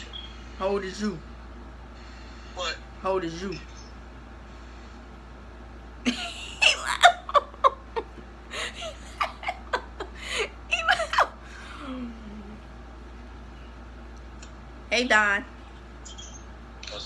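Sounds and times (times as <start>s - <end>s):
person laughing hard: 6.1s - 12.2s.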